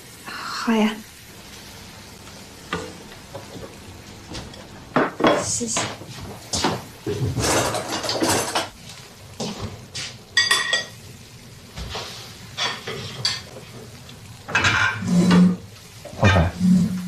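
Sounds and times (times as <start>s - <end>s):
dishes and cutlery clinking: 6.6s - 8.8s, 10.4s - 11.0s, 14.5s - 15.6s.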